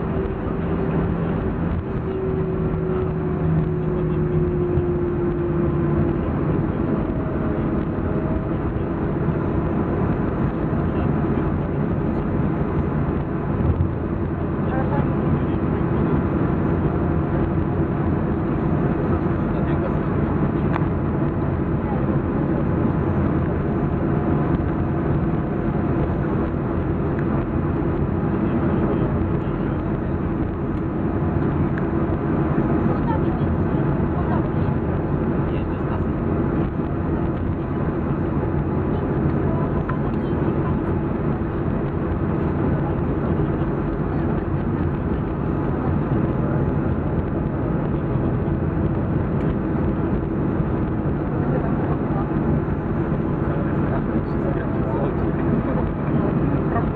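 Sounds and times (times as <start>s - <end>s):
airliner engines idling in cabin: 0.0s - 56.9s.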